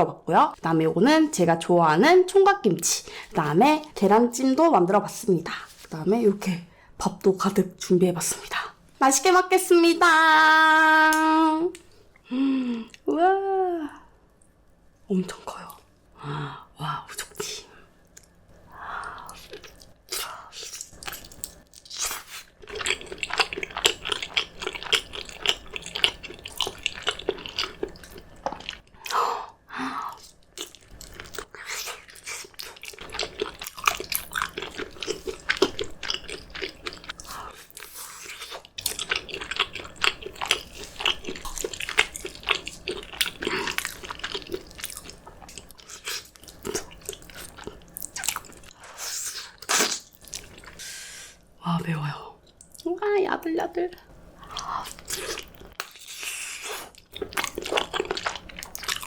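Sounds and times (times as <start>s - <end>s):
close chewing and biting: 19.2s - 29.2s, 30.1s - 48.8s, 54.4s - 59.0s.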